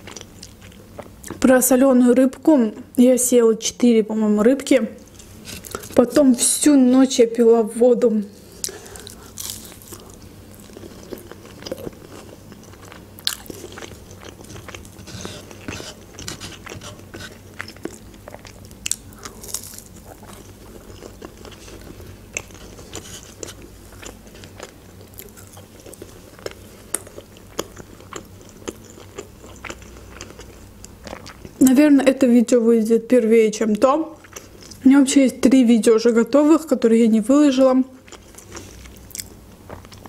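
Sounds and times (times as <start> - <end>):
person chewing crunchy food: 0.0 - 1.4, 5.0 - 6.0, 8.4 - 31.6, 34.2 - 34.8, 38.0 - 40.0.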